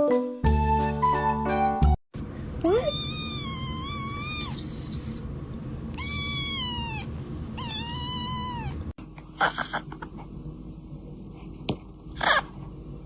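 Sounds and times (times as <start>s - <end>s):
cat meowing: 2.7s - 4.6s, 6.0s - 8.9s.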